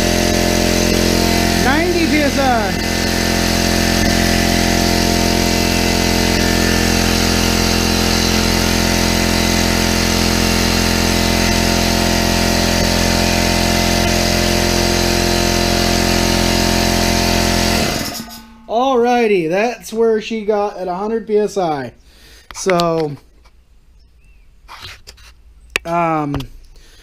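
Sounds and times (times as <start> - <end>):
air compressor running: 0.0 - 18.7.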